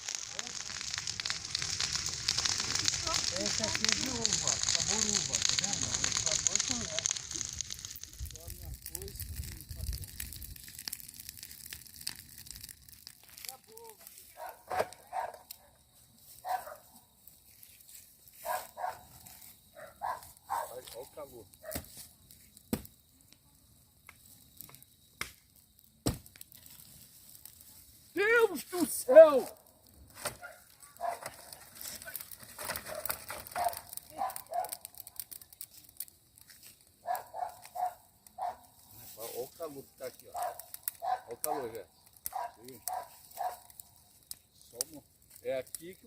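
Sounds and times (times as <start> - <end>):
bonfire crackling and popping: 0.0 - 46.0
dog barking: 14.4 - 15.8, 16.4 - 16.8, 18.4 - 19.1, 19.8 - 20.7, 30.4 - 31.3, 32.9 - 34.8, 37.0 - 38.6, 40.4 - 41.6, 42.3 - 43.7.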